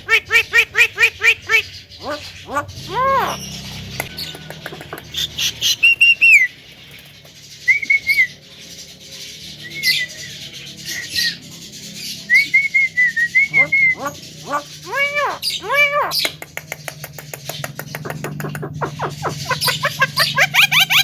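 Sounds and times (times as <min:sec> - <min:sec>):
bird clicking chatter: 0:03.8 - 0:06.2, 0:16.2 - 0:21.0
bird whistling phrases: 0:05.2 - 0:06.5, 0:07.7 - 0:08.3, 0:12.3 - 0:16.4.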